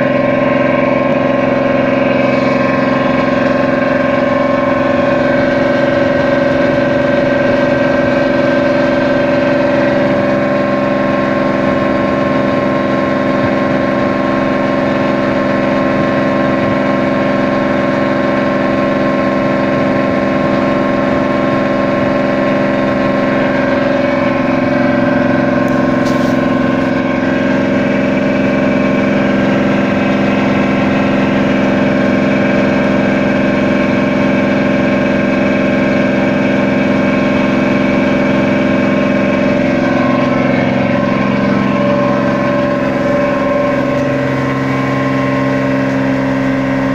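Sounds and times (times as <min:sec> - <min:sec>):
boat engine drone: 0:00.0 - 0:46.9.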